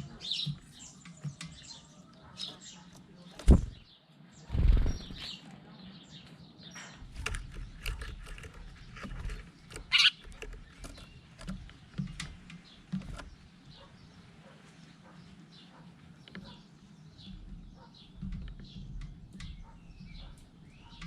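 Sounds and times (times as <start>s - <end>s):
birds chirping: 0.0s - 21.0s
handling clicks and knocks: 7.0s - 13.8s.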